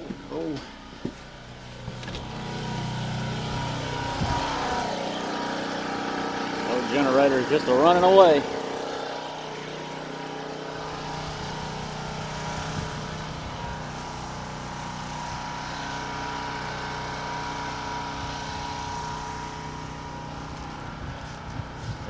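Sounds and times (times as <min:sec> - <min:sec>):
portable generator running: 0:00.0 - 0:22.0.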